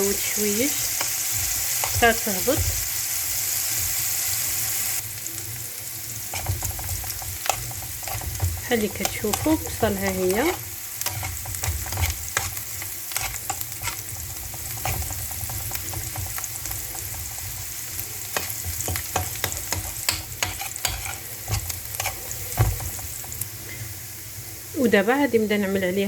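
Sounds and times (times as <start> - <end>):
onion and garlic sizzling in oil: 0.0 - 26.0
utensil scraping a pan: 6.3 - 23.4.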